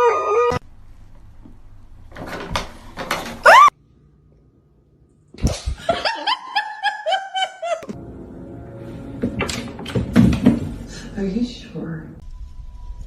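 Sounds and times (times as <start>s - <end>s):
high-pitched laughter: 5.8s - 7.9s.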